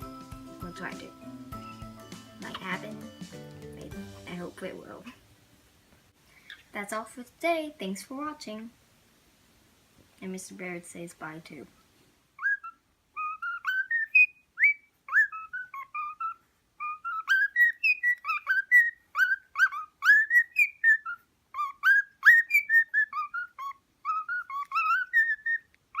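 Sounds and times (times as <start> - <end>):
cockatiel whistling chirps: 12.4 - 26.0.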